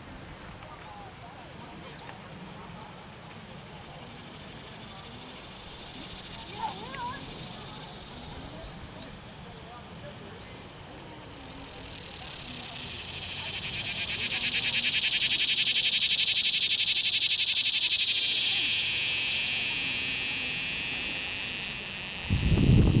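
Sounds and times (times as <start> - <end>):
cicada buzzing: 4.5 - 9.3, 11.2 - 23.0.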